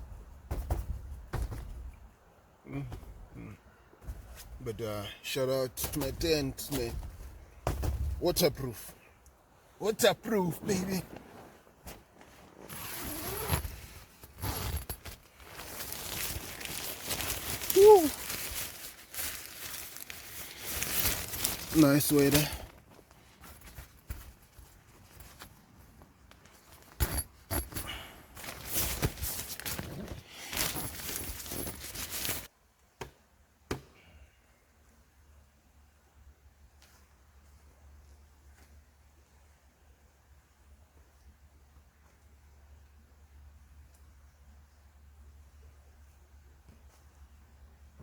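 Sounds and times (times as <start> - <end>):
objects rustling and clattering: 10.6 - 32.5
tent zipper pulled: 11.0 - 19.5, 28.4 - 32.5.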